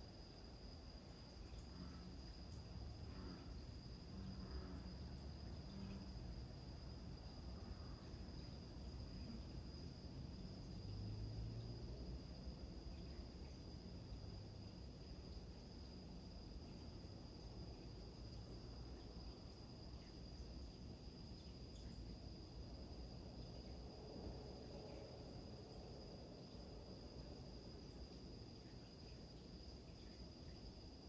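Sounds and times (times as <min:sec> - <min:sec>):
crickets chirring: 0:00.0 - 0:31.0
bullfrogs croaking: 0:01.5 - 0:06.1.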